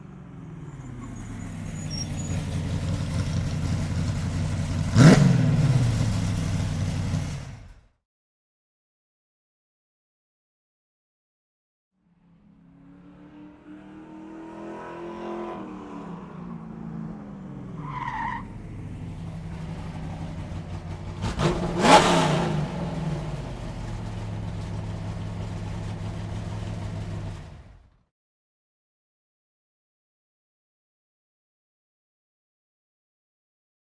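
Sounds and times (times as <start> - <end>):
car engine running: 0.0 - 7.8, 18.5 - 28.0
tyre skid: 0.4 - 5.0.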